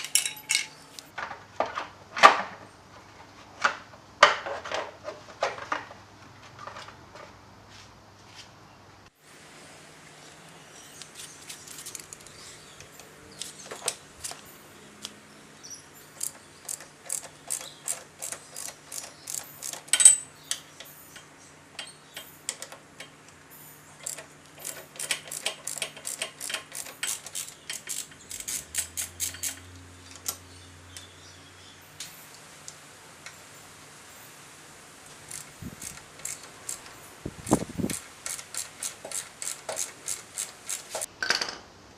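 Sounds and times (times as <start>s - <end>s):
metal hand tools clicking: 24.0s - 29.7s, 35.3s - 41.1s.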